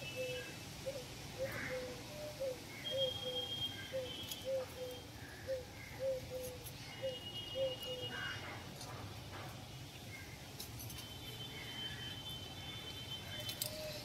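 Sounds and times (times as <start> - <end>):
bird hooting: 0.0 - 8.2.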